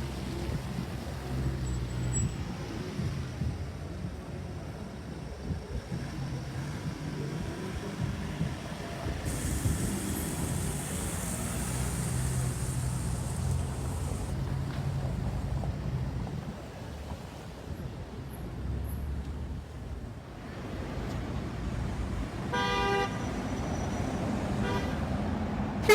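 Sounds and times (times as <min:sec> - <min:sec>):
vehicle engines passing: 0:05.9 - 0:22.5.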